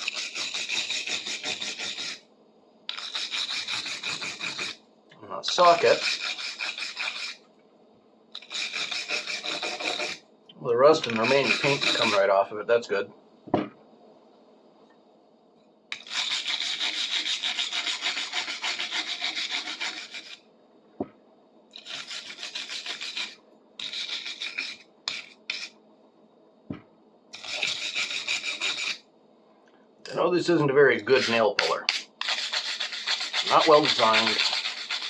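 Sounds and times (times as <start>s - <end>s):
wire brush scrubbing metal: 11.0s - 12.3s, 30.5s - 35.0s.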